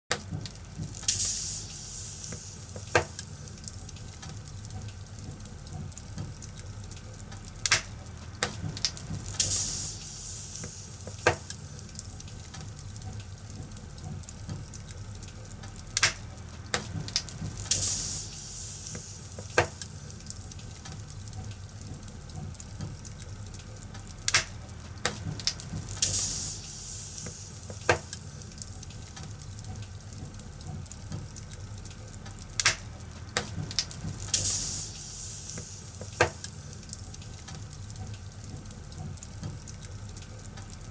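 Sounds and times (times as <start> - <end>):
sharp pops: 0.1 - 3.3, 7.6 - 11.6, 16.0 - 19.9, 24.3 - 28.2, 32.6 - 36.5
wood fire crackling: 0.1 - 40.9
soft high hiss: 0.7 - 4.2, 9.0 - 12.5, 17.2 - 20.9, 25.6 - 29.2, 33.9 - 38.4.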